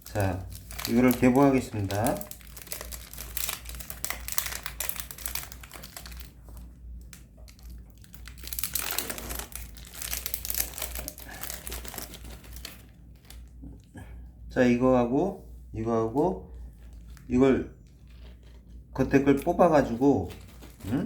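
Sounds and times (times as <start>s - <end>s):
plastic packaging crinkling: 0.0s - 13.9s, 16.5s - 21.0s.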